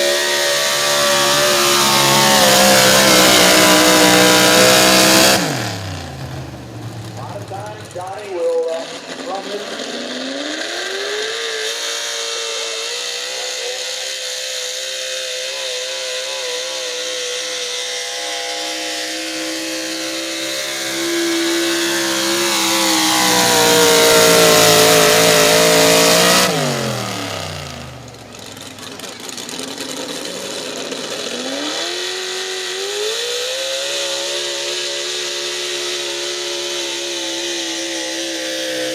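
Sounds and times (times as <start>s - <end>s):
truck engine at high revs: 0.0s - 38.9s.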